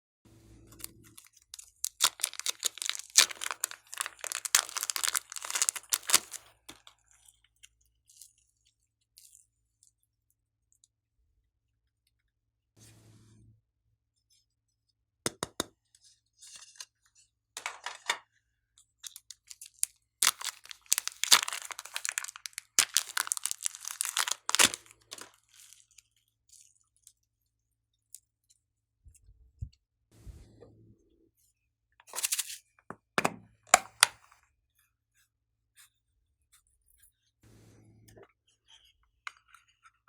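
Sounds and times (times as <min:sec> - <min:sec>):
slime crackling and popping: 0:00.8 - 0:06.9, 0:19.3 - 0:25.8.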